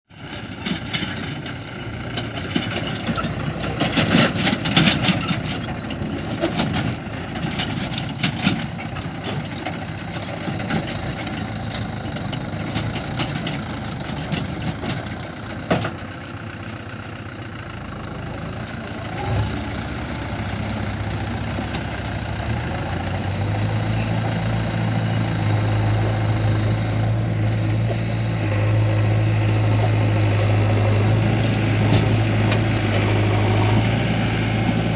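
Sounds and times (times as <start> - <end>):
diesel engines running: 0.1 - 34.9
low engine drone: 22.5 - 34.9.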